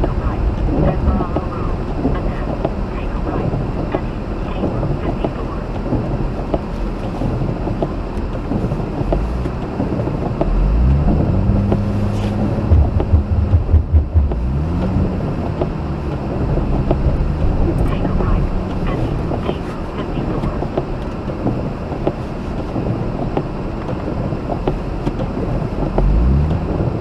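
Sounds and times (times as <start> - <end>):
road tyre and wind noise: 0.0 - 27.0
rotary engine hum rising: 9.2 - 20.0.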